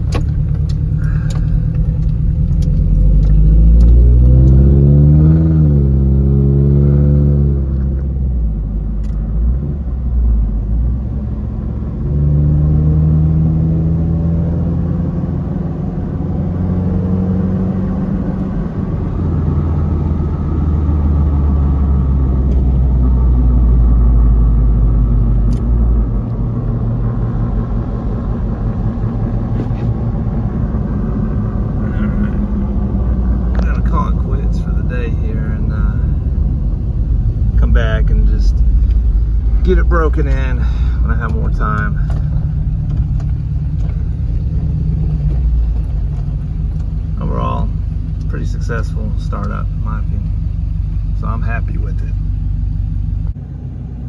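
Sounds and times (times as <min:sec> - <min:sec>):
truck engine running: 0:00.0 - 0:04.6, 0:17.5 - 0:54.0.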